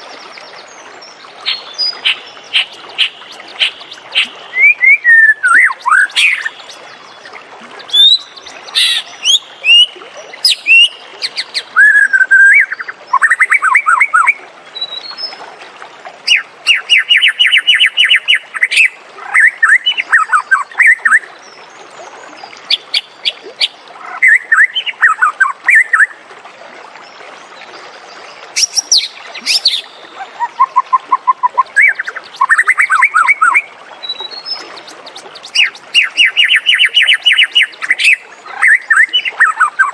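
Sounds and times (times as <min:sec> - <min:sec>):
bird singing whistled phrases: 0:02.1 - 0:06.7, 0:07.9 - 0:10.9, 0:11.8 - 0:14.3, 0:28.6 - 0:34.2.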